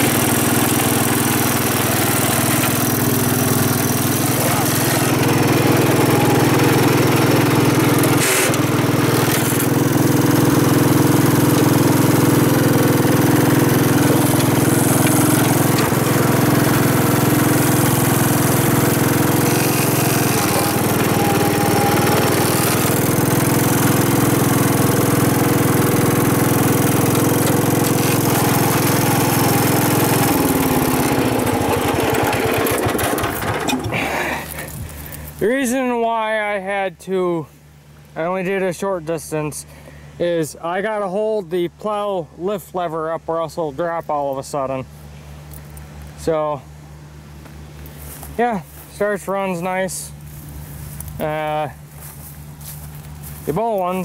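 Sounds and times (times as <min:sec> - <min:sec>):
engine knock: 0:00.0 - 0:34.0
tractor engine running: 0:00.0 - 0:35.8, 0:44.5 - 0:54.0.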